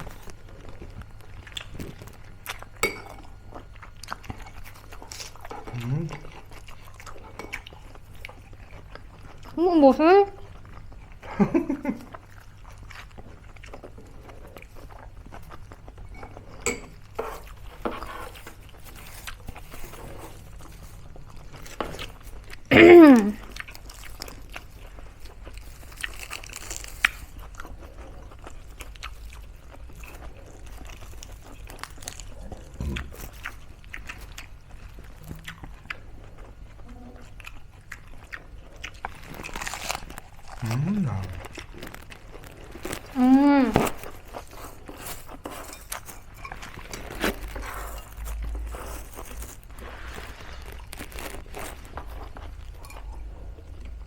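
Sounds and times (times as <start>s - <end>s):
crunching and chewing: 0.0s - 9.6s, 10.3s - 22.7s, 23.4s - 54.0s.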